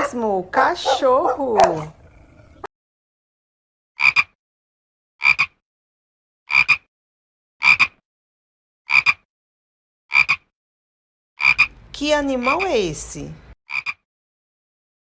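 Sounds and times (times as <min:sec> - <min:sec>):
frog croaking: 0:10.1 - 0:10.5, 0:11.4 - 0:11.7, 0:13.7 - 0:14.0.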